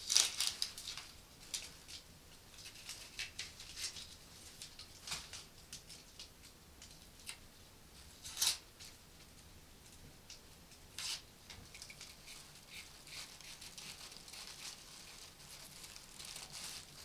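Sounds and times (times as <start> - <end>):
soft rustles: 11.8 - 17.0.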